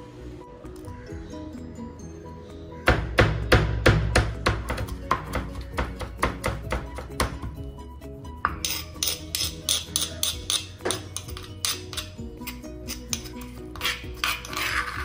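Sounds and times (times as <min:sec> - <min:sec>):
background music: 0:00.0 - 0:15.0
pestle pounding in stone mortar: 0:02.9 - 0:07.6, 0:08.5 - 0:14.8
metal spoon scraping stone: 0:08.4 - 0:15.0.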